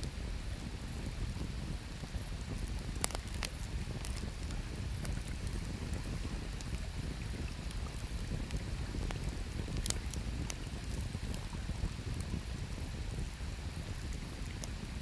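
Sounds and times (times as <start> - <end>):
campfire crackling and popping: 2.0 - 13.2.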